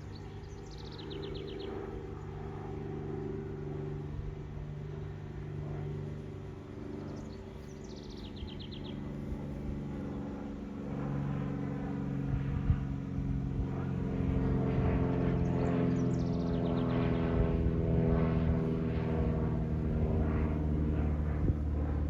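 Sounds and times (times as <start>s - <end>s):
songbird singing: 0.0s - 2.4s, 7.0s - 10.3s, 15.4s - 17.3s
low engine hum: 0.0s - 22.0s.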